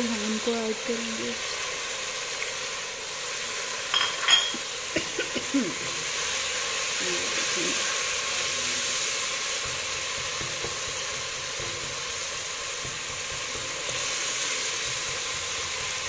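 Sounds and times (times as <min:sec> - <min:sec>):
masala sizzling in hot oil: 0:00.0 - 0:16.0
wooden spatula stirring in pot: 0:05.7 - 0:16.0.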